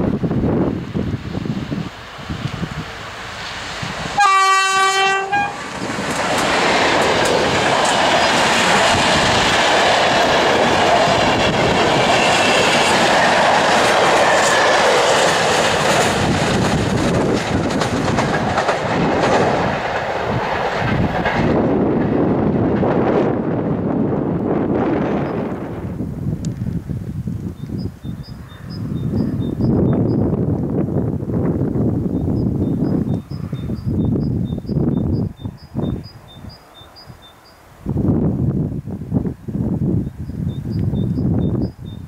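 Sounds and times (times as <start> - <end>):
train coaches rolling past: 0.0 - 42.0
locomotive horn: 4.2 - 5.7
wheels clacking over rails: 5.6 - 22.9.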